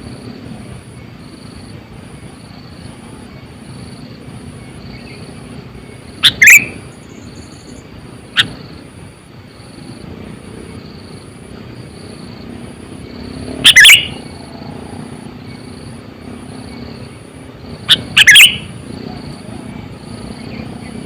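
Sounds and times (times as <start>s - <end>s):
low steady background noise: 0.0s - 21.0s
bulbul calling: 5.9s - 8.7s, 13.6s - 14.4s, 17.7s - 19.2s.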